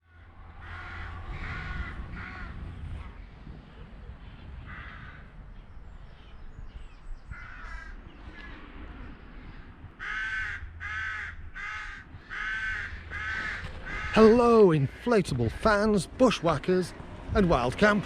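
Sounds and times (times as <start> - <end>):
crow cawing: 0.0 - 2.7, 4.2 - 5.4, 7.3 - 8.6, 9.4 - 17.1
wind on microphone: 0.4 - 14.2.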